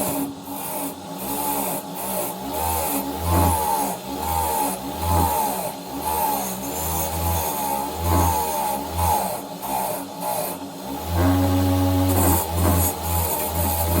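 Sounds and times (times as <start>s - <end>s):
hand tool rasping on metal: 11.1s - 14.0s.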